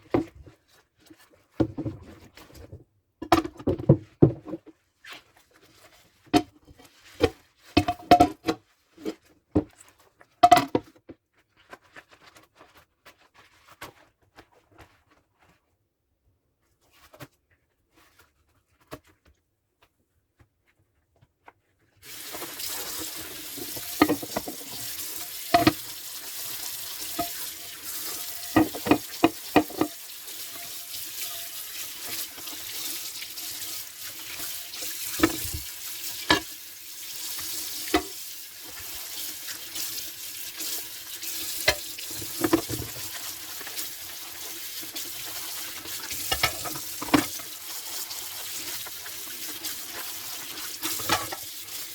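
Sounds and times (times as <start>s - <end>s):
dishes knocking and clinking: 7.8s - 8.6s, 10.4s - 10.8s, 23.7s - 24.8s, 25.5s - 25.8s, 27.1s - 27.5s, 28.4s - 30.0s, 35.2s - 35.6s, 36.2s - 36.5s
tap water running into sink: 22.0s - 51.9s.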